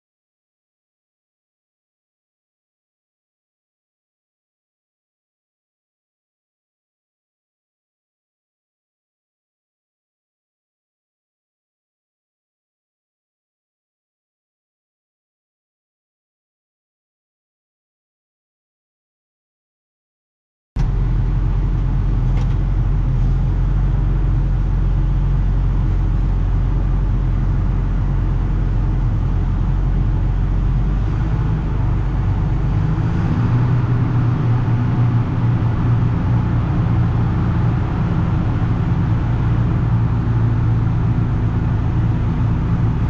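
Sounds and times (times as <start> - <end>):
heavy diesel engine running: 20.8 - 43.0.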